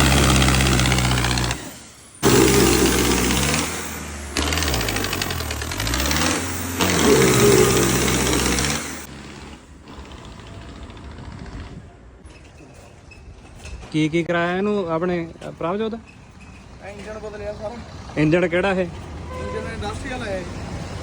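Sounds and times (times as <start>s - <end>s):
tractor diesel engine revving: 0.0s - 11.8s.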